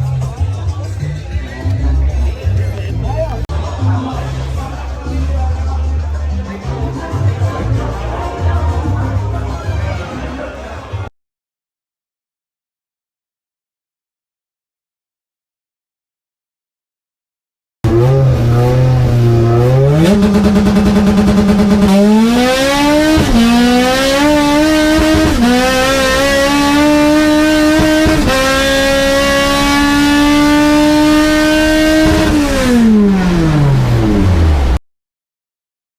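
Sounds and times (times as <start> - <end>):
car engine accelerating hard: 17.8 - 34.8.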